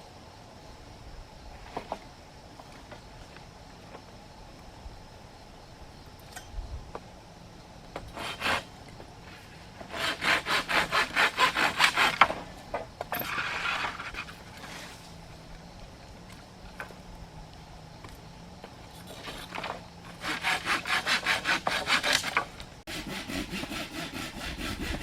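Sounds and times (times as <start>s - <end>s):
hand saw cutting wood: 8.0s - 8.7s, 9.3s - 12.5s, 13.1s - 15.0s, 19.1s - 25.0s
scraping rasp: 8.0s - 12.5s, 13.1s - 15.1s, 19.0s - 25.0s.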